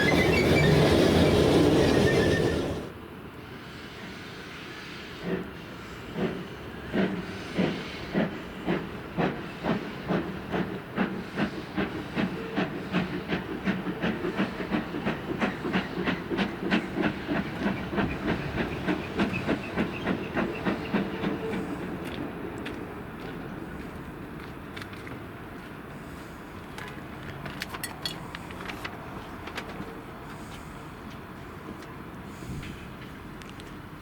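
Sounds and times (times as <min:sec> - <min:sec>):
steam hissing: 0:00.0 - 0:02.9, 0:04.0 - 0:22.0
steam locomotive chuffing: 0:00.0 - 0:02.9, 0:05.0 - 0:22.8.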